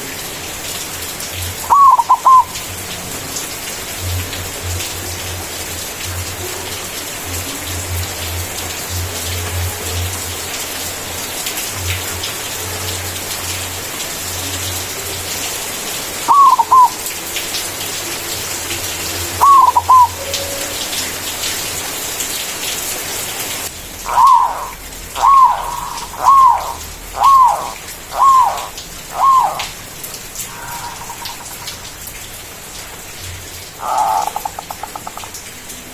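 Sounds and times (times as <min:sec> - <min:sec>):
rain-like hiss: 0:00.0 - 0:35.9
dove cooing: 0:01.7 - 0:02.6, 0:16.3 - 0:17.0, 0:19.4 - 0:20.8, 0:24.1 - 0:29.7, 0:30.5 - 0:31.8, 0:33.8 - 0:35.2.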